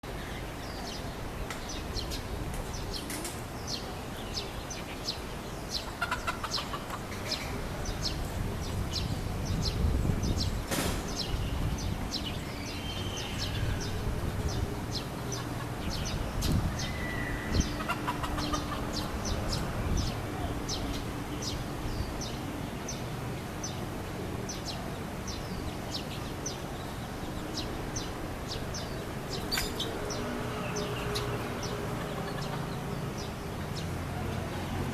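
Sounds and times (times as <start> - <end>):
chickens clucking: 5.7 - 7.9, 14.6 - 20.6, 31.2 - 33.3.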